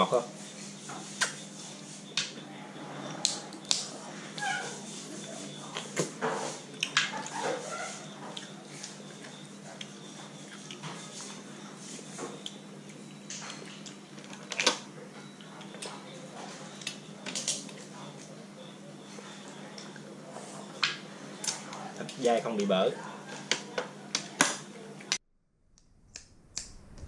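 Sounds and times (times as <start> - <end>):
high squeaks: 4.4 - 4.8
low hum: 25.4 - 27.0.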